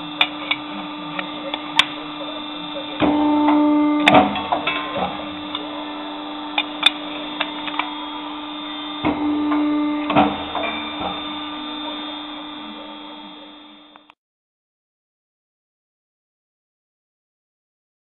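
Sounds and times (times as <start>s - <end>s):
machine humming: 0.0s - 14.2s
machine knocks: 3.0s - 5.3s, 9.0s - 11.4s.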